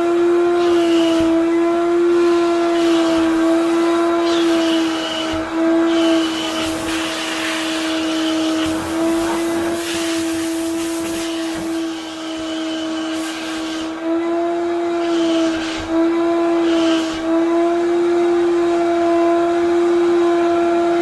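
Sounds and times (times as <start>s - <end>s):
wet vacuum cleaner motor whine: 0.0s - 21.0s.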